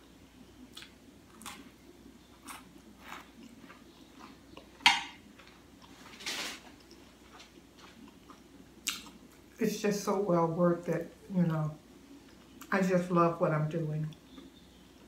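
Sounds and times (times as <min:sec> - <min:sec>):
chewing with wet mouth smacks: 0:06.8 - 0:09.5.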